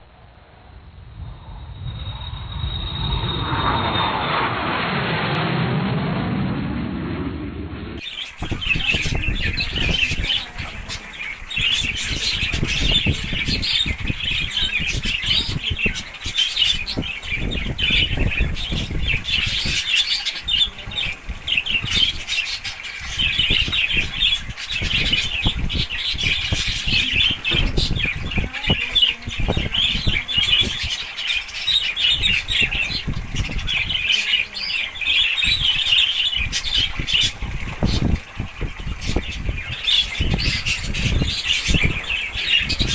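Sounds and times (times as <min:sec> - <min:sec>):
birds chirping and squawking: 0:08.0 - 0:42.9
low rushes and thuds: 0:20.4 - 0:31.0.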